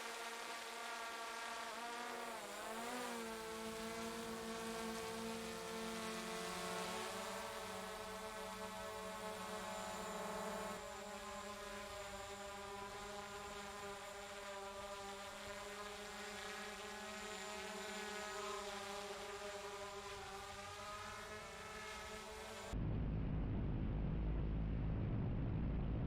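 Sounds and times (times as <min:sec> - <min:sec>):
low rumble of wind: 0:22.7 - 0:26.0.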